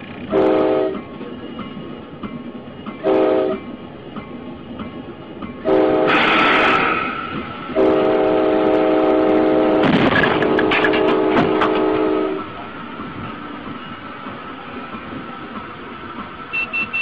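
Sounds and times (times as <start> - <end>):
moving train noise: 0.0 - 17.0
train air horn: 0.3 - 1.0, 3.0 - 3.6, 5.6 - 12.5.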